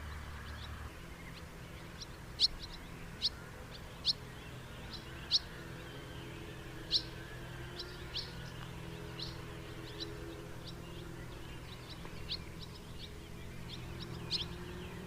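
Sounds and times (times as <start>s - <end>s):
faint low hum: 0.0s - 15.0s
house martins chirping: 0.0s - 15.0s.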